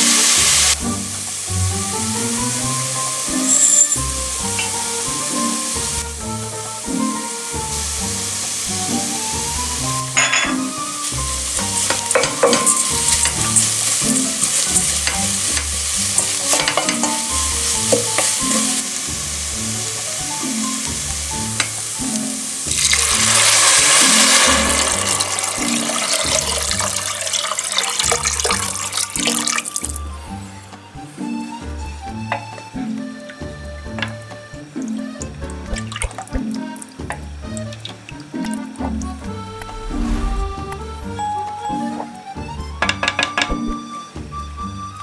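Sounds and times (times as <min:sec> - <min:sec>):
vegetables sizzling in oil: 0:00.0 - 0:30.0
water hissing in hot pot: 0:00.0 - 0:30.5
background music with beat: 0:00.0 - 0:45.0.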